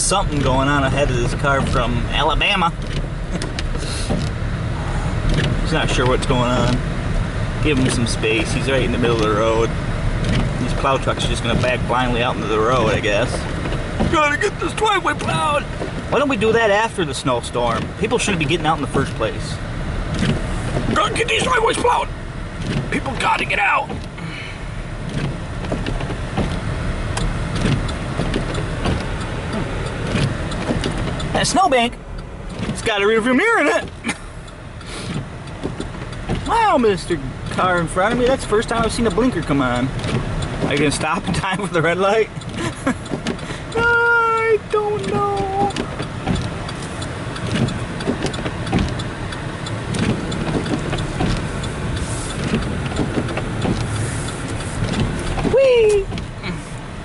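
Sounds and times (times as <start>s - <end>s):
car engine and tyres rumbling: 0.0s - 57.0s
small knocks and clicks: 5.2s - 6.8s, 25.0s - 31.4s, 35.1s - 36.7s, 42.4s - 43.8s, 44.6s - 56.4s
faint ticks: 42.3s - 55.4s.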